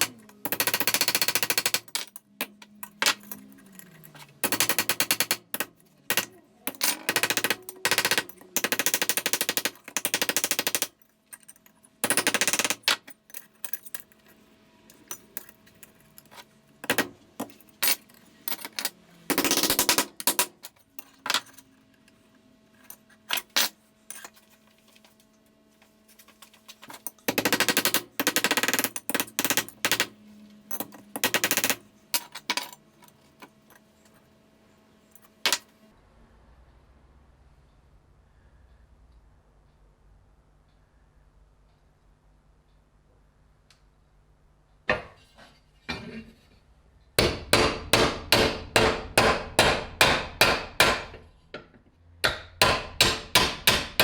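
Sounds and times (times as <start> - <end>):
power tool rattling hammering: 0.0 - 3.2, 4.4 - 11.0, 12.0 - 13.1, 19.3 - 20.6, 27.2 - 30.2, 31.1 - 31.8, 47.2 - 54.0
faint steady hum: 0.0 - 54.0.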